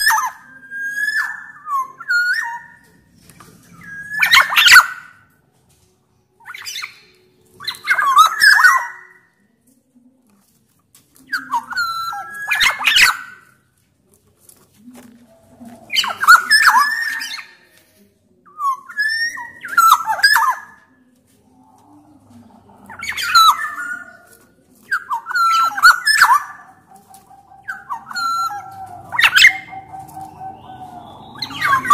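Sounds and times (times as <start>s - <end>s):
bird calling: 21.5s - 31.9s.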